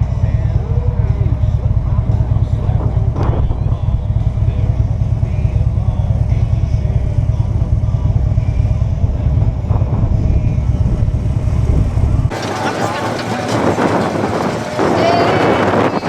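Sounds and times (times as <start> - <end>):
motorcycle engine drone: 0.0 - 16.0
wind buffeting on microphone: 0.4 - 5.5, 8.7 - 16.0.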